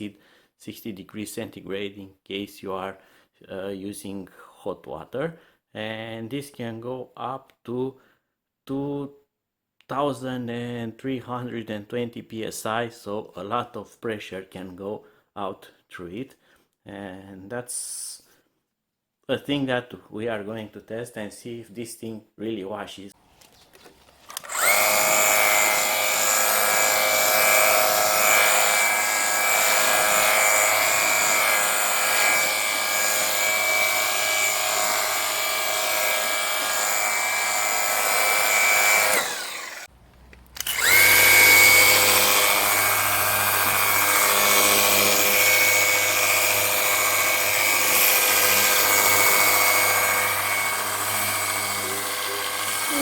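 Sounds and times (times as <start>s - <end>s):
pressure washer motor whining: 24.3s - 53.0s.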